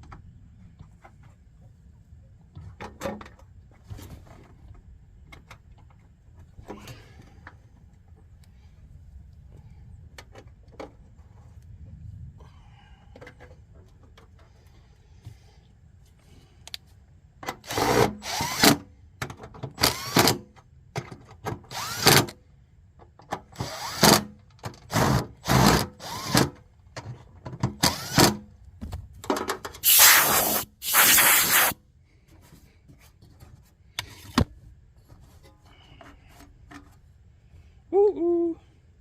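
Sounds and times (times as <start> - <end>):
rubbing and scraping of tools: 29.8 - 31.8.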